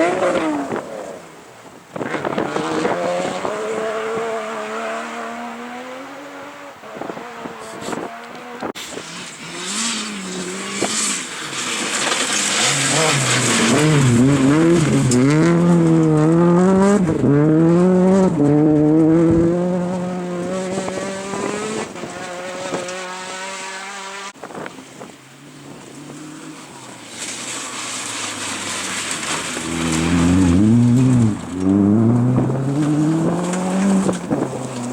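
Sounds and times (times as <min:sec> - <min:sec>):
rally car engine driven hard: 0:00.0 - 0:34.9
another car engine approaching: 0:25.4 - 0:34.9.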